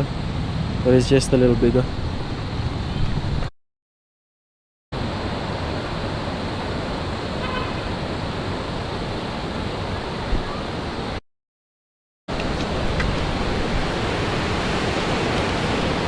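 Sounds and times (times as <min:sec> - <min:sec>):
river rushing: 0:05.0 - 0:11.2, 0:12.3 - 0:16.0.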